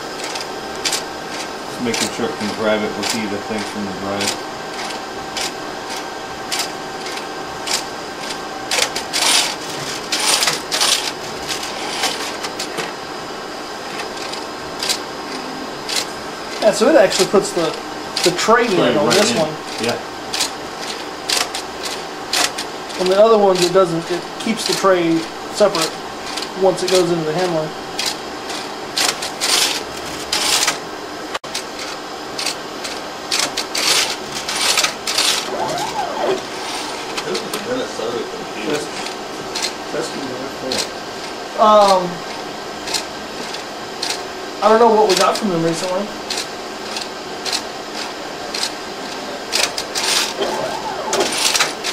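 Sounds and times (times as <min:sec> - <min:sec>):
steady fan hum: 0:00.0 - 0:51.9.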